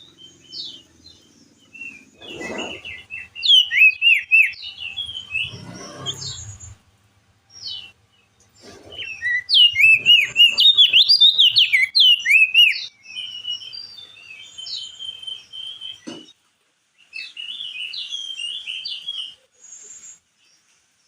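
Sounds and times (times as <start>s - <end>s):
bird warbling whistled notes: 1.7s - 6.8s, 8.8s - 16.0s.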